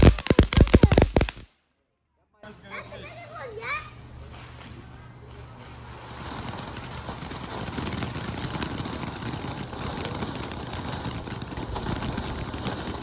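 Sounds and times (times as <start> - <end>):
firework fountain crackling hiss: 0.0 - 1.5, 5.8 - 13.0.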